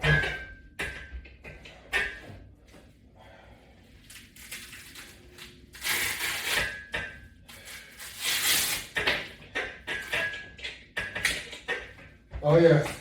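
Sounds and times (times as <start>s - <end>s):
person breathing hard: 3.1s - 3.9s.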